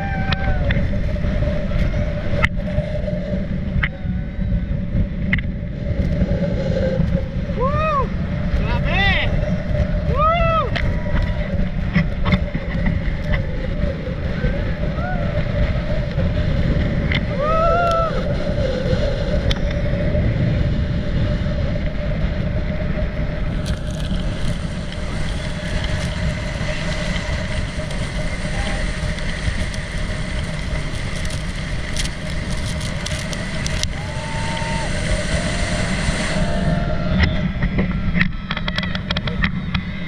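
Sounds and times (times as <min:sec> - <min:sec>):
water noise: 0:00.0 - 0:40.0
wind rumble on microphone: 0:00.0 - 0:40.0
motorboat engine running: 0:18.4 - 0:40.0.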